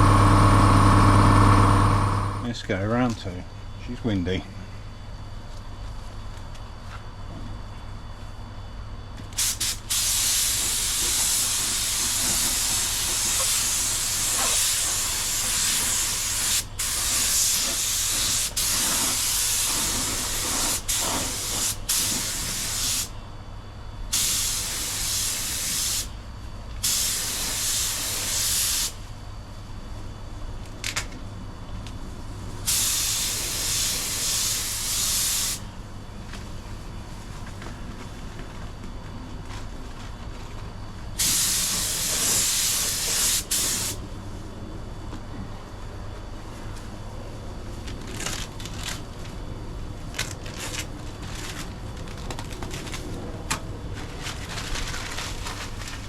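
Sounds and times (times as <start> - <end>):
steady low hum: 0.0 - 56.0
paint spray gun hissing: 9.4 - 23.1, 26.8 - 29.0, 32.7 - 35.6, 41.2 - 44.0.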